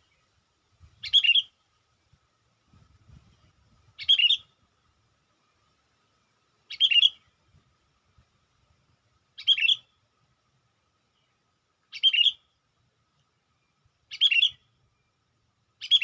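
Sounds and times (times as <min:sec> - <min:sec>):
bird lure call: 0:01.0 - 0:01.5, 0:04.0 - 0:04.4, 0:06.7 - 0:07.2, 0:09.4 - 0:09.9, 0:11.9 - 0:12.4, 0:14.1 - 0:14.6, 0:15.8 - 0:16.0.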